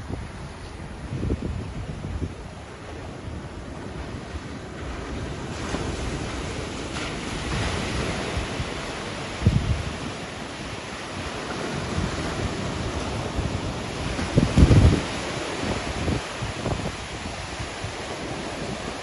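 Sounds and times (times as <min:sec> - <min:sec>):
sea waves breaking: 0:00.0 - 0:19.0
wind buffeting microphone: 0:00.0 - 0:19.0.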